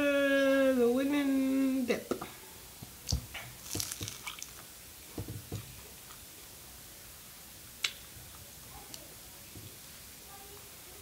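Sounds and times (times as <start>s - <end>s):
wet chewing: 3.6s - 4.6s.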